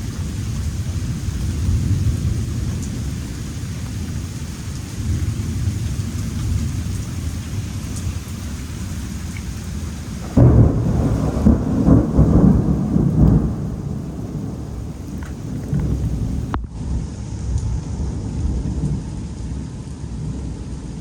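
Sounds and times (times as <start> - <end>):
thunder clap and rumble: 0.0 - 16.6
rain: 0.0 - 21.0
distant rumble: 8.8 - 16.6.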